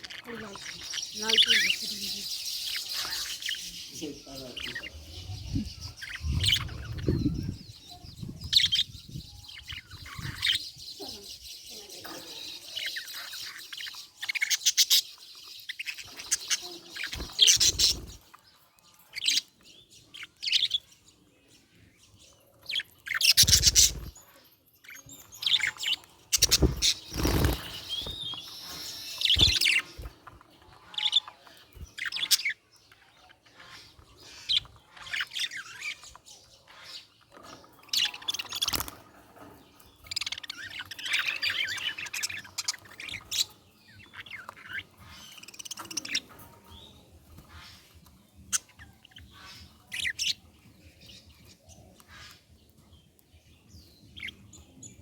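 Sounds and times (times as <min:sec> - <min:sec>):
budgerigar chirping: 0:23.1 - 0:24.1, 0:25.5 - 0:30.1, 0:48.5 - 0:50.4.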